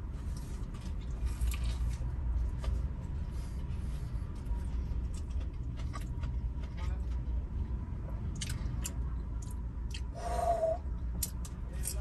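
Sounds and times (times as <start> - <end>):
steady low rumble: 0.0 - 12.0
crunching fried chicken sandwich: 5.0 - 7.1.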